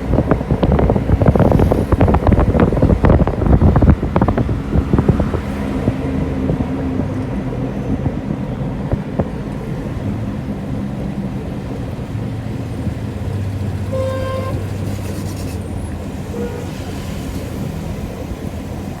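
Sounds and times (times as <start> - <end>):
vehicle engine running: 0.0 - 19.0
car horn toots: 13.8 - 15.6, 16.2 - 16.9.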